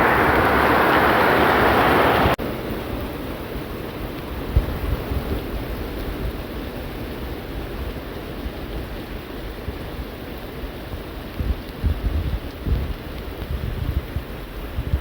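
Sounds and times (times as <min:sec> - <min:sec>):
low rumble: 0:00.0 - 0:02.4
rain falling: 0:00.0 - 0:15.0.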